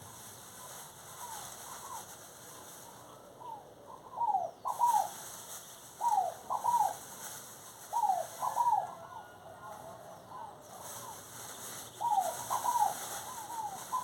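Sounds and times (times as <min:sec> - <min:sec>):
bird calling falling notes: 0:11.9 - 0:14.0.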